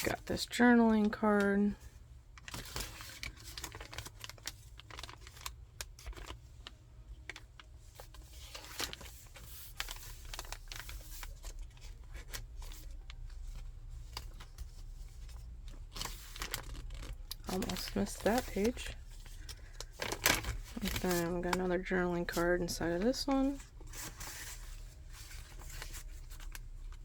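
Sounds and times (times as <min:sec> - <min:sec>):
paper pages turning: 0:02.4 - 0:27.0
paper cards handled: 0:07.2 - 0:27.0.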